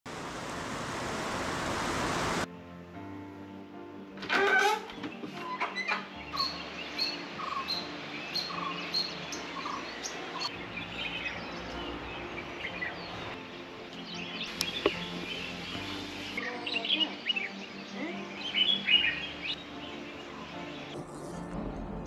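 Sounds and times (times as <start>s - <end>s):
wild birds calling: 4.4s - 21.0s.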